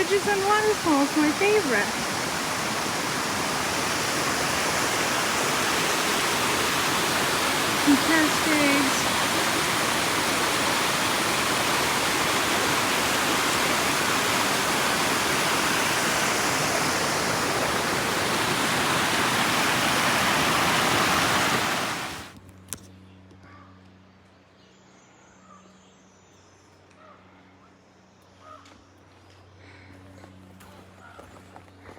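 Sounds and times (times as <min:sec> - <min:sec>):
waterfall rushing: 0:00.0 - 0:22.3.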